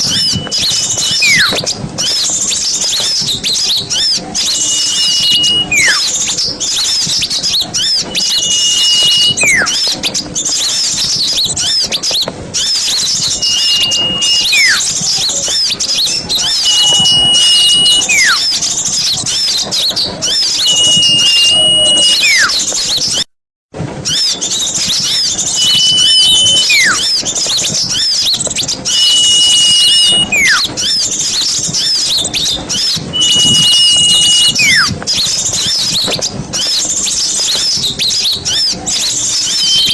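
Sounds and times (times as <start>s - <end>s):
whistled note dropping in pitch: 0.0s - 1.6s, 4.4s - 6.2s, 7.8s - 9.8s, 13.2s - 14.9s, 16.2s - 18.5s, 20.4s - 22.6s, 25.3s - 27.2s, 28.9s - 30.7s, 32.7s - 34.9s, 39.4s - 39.9s
small birds chirping: 0.0s - 23.3s, 24.1s - 39.9s.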